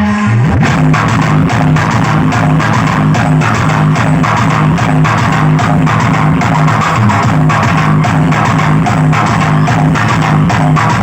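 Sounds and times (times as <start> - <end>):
loud dance music with bass: 0.0 - 11.0.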